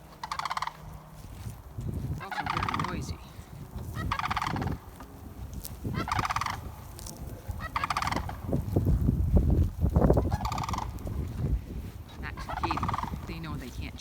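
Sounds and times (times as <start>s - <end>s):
cranes calling: 0.0s - 9.0s, 10.0s - 14.0s
low rumbling noise: 2.9s - 14.0s.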